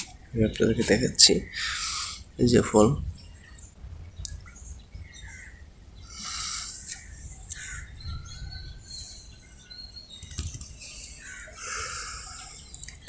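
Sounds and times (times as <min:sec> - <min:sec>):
birds chirping: 0:00.0 - 0:13.0
low background rumble: 0:00.1 - 0:13.0
thin whistled bird notes: 0:03.2 - 0:13.0.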